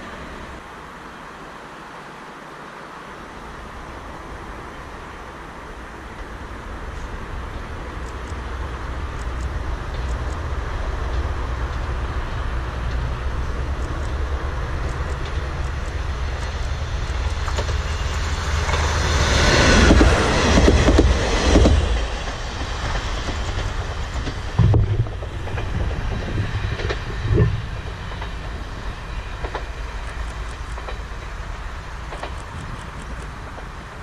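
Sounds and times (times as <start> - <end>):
diesel railcar passing: 0.0 - 34.0
low thumps: 24.2 - 28.6.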